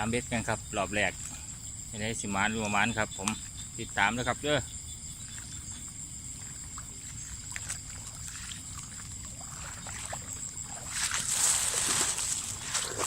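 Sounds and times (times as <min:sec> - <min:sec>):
high-pitched insect trill: 0:00.0 - 0:13.0
water sloshing and splashing: 0:05.2 - 0:13.0.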